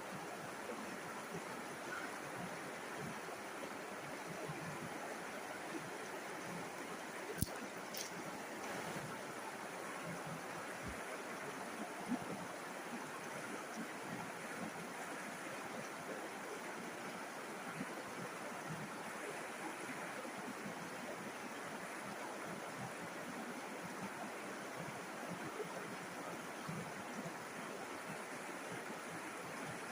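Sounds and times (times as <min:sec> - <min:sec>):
river water flowing: 0:00.0 - 0:29.9
water splashes: 0:05.5 - 0:16.0.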